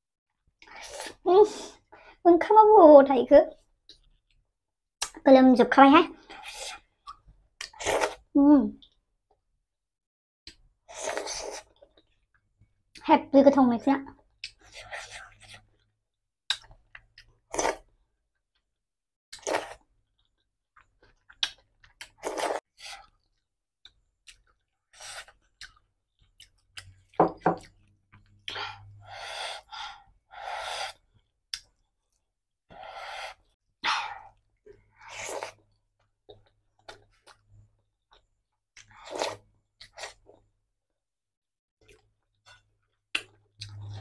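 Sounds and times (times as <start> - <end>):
person chewing wetly: 19.3 - 28.6.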